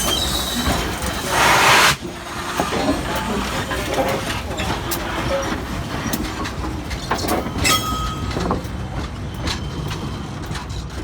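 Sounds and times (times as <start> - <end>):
high wheel squeal: 0.0 - 2.0.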